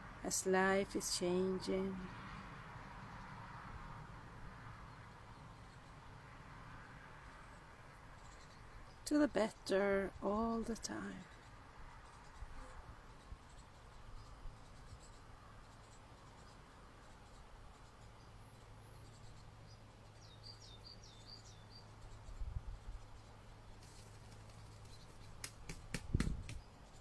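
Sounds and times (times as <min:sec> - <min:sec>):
small bird chirping: 0:04.8 - 0:06.2, 0:07.3 - 0:09.8, 0:10.5 - 0:27.0.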